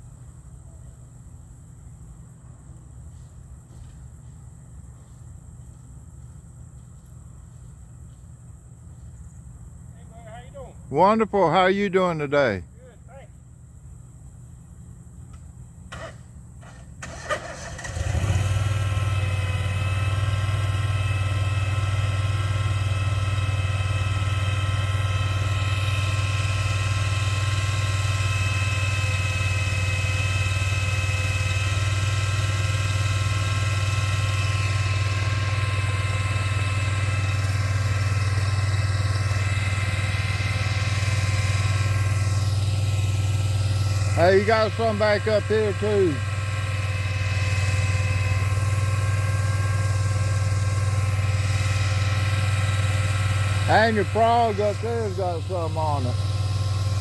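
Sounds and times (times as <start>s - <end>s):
engine starting and running: 15.3s - 57.0s.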